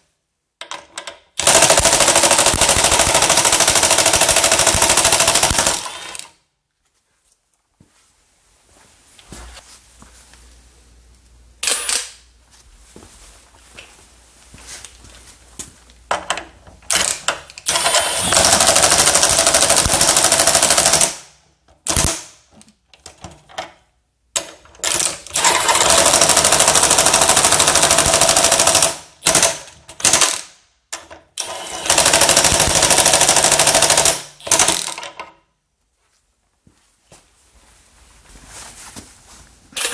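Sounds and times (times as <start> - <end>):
impact wrench hammering: 1.4 - 6.2.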